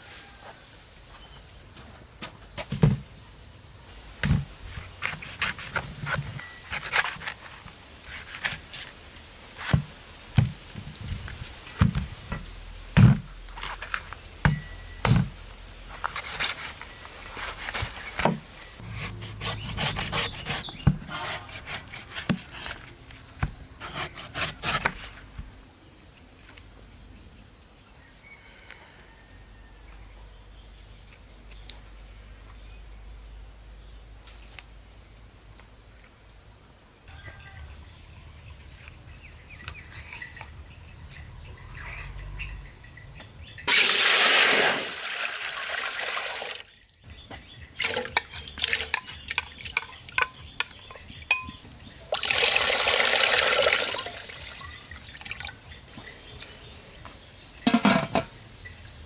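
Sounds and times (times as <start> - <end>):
knocks and scraping on wood: 9.6 - 25.6, 57.6 - 58.4.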